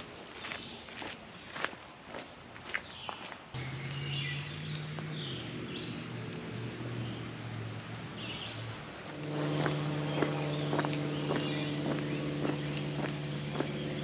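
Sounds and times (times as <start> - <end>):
motor engine droning: 3.6 - 14.0.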